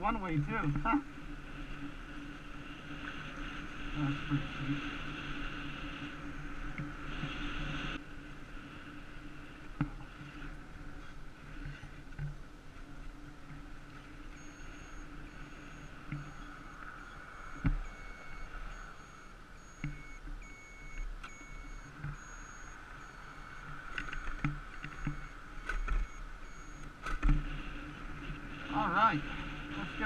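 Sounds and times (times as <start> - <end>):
electric bike hum and whine: 0.0 - 30.0
faint high beep: 3.2 - 4.9, 14.3 - 26.9.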